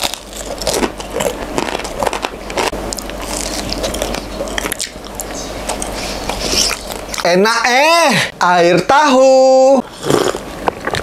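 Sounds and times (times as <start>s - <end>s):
crunchy chewing of fried banana: 0.0s - 7.4s, 9.8s - 11.0s.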